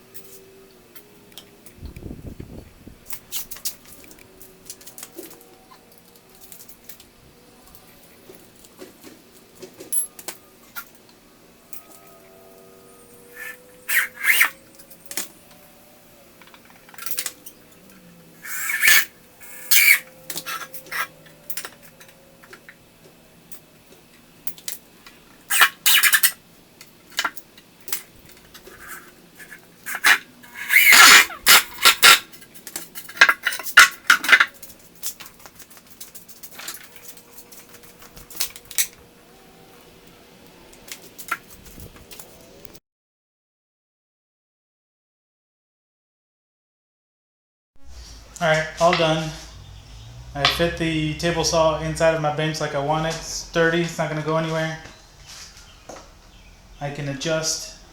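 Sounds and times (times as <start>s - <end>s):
tools clattering on a workbench: 8.3s - 10.9s, 31.0s - 39.0s.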